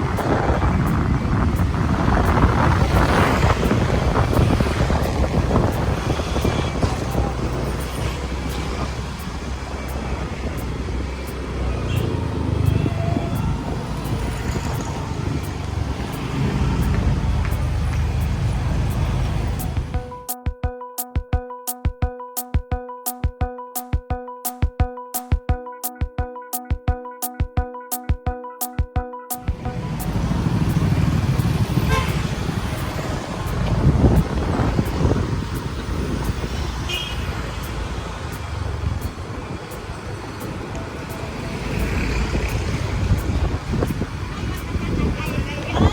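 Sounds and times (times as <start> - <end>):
motorbike engine and road rumble: 0.0 - 20.2, 29.5 - 45.9.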